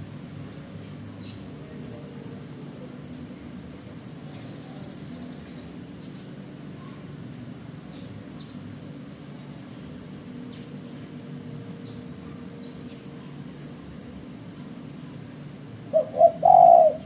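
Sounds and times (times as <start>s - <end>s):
faint hum: 0.0s - 17.0s
small birds chirping: 16.0s - 17.0s.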